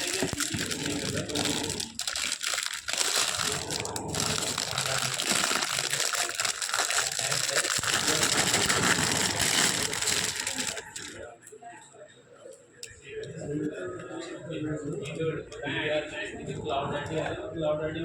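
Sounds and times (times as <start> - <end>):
packaging wrapping crinkling: 0.0 - 11.2.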